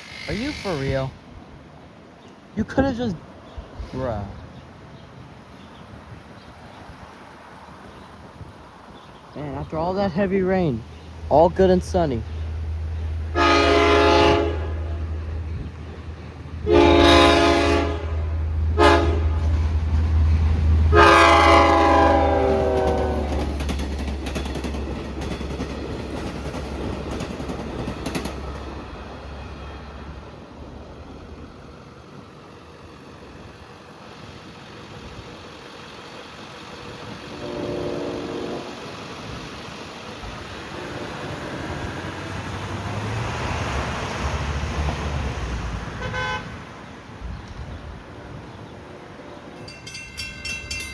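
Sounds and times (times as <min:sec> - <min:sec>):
train engine rumble: 0:00.0 - 0:50.9
train horn: 0:13.3 - 0:15.1, 0:16.6 - 0:19.5, 0:20.9 - 0:23.5, 0:37.1 - 0:38.8, 0:40.7 - 0:41.9, 0:46.0 - 0:46.6.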